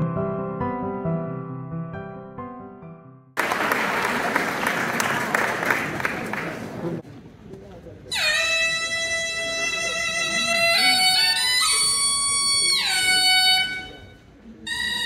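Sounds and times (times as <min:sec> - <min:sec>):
reedy wind instrument melody: 0:08.1 - 0:15.0.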